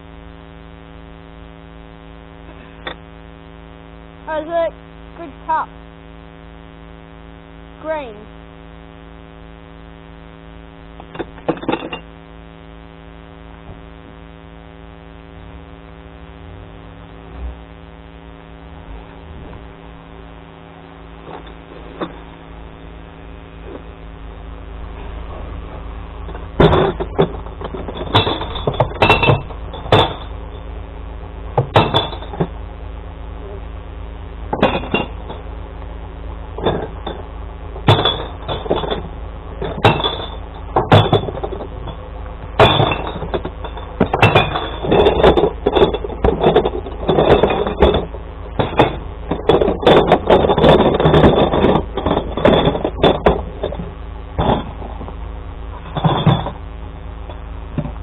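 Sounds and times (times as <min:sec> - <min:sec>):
truck engine hum: 0:12.2 - 0:58.0
glass bottles smashing: 0:26.6 - 0:30.4, 0:31.7 - 0:32.4, 0:37.9 - 0:42.0, 0:42.6 - 0:53.4.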